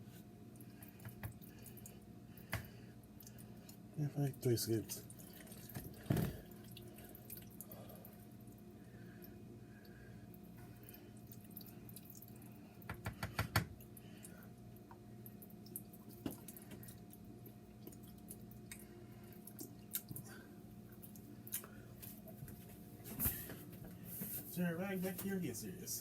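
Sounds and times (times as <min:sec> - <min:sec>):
steady hum: 0:00.0 - 0:26.0
wet squishing of noodles: 0:05.0 - 0:12.8, 0:14.0 - 0:22.4.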